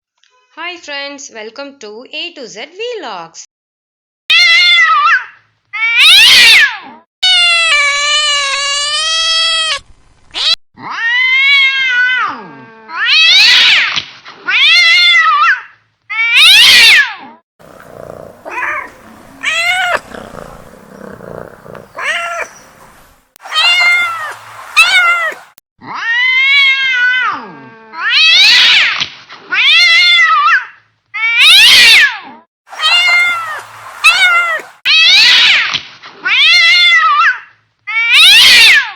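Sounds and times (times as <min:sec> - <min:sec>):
cat meowing loudly: 0:04.3 - 0:09.8, 0:10.4 - 0:13.9, 0:14.5 - 0:17.1, 0:17.7 - 0:30.6, 0:31.2 - 0:38.9
low rough cat sounds: 0:17.6 - 0:28.5, 0:32.7 - 0:35.6.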